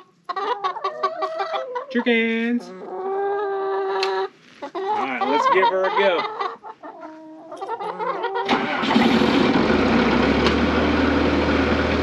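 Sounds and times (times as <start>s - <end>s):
diesel engine starting and running: 8.4s - 12.0s.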